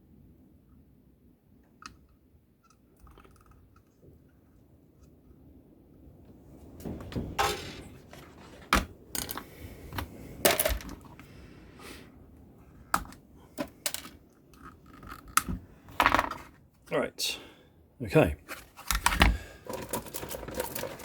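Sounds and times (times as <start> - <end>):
tools clattering on workbench: 7.2 - 9.5, 10.5 - 11.1, 18.9 - 21.0
small tools clicking and knocking: 9.2 - 11.2, 13.0 - 16.4, 18.9 - 21.0.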